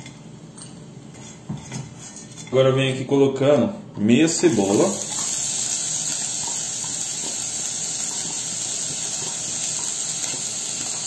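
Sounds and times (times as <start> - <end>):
onion sizzling in a pot: 4.3 - 11.0.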